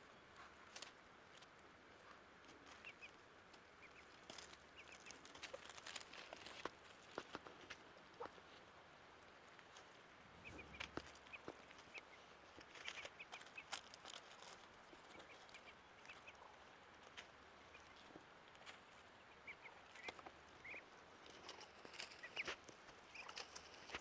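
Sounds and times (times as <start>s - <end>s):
ducklings peeping: 0.0s - 24.0s.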